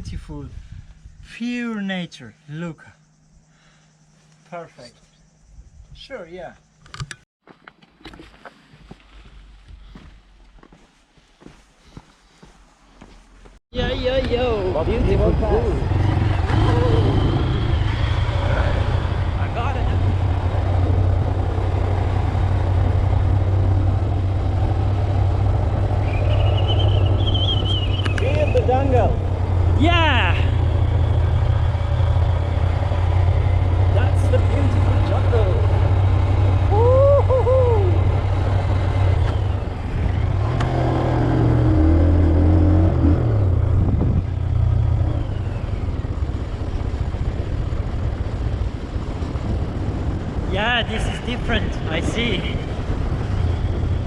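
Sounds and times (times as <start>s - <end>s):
wind rush over microphone: 0.0s - 1.3s, 36.4s - 41.0s, 41.9s - 54.0s
wind noise: 0.0s - 1.4s, 5.4s - 6.2s, 13.7s - 54.0s
motorcycle engine running: 13.8s - 54.0s
high wavering whistle: 26.0s - 28.6s.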